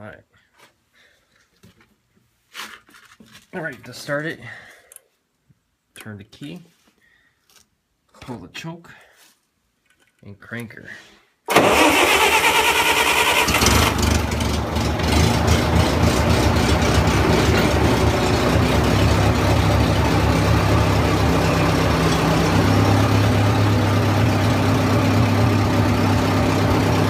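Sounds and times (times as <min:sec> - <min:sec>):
starter motor cranking: 0:11.5 - 0:24.2
engine running steadily: 0:13.3 - 0:27.0.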